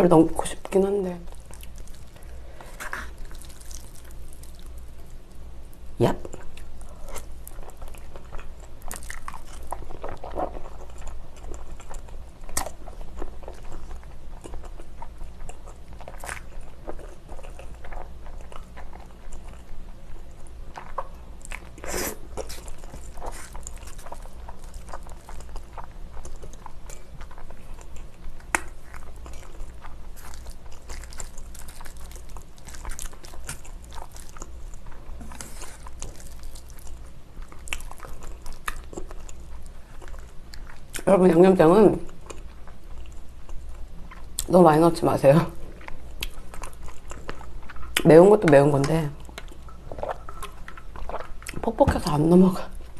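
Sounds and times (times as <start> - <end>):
chewing noodles: 1.3 - 5.2, 6.3 - 41.1, 49.2 - 51.7.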